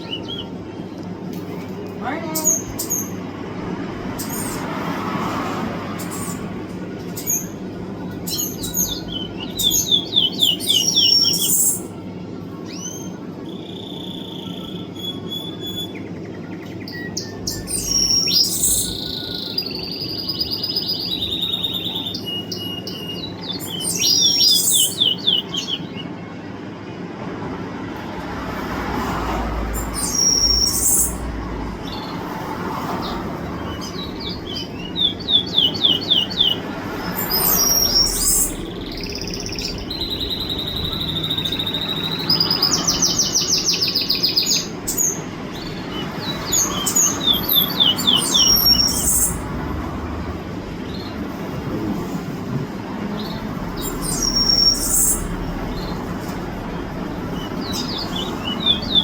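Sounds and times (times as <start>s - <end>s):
songbird singing: 0.0s - 26.3s, 28.8s - 59.0s
steady low hum: 44.1s - 59.0s.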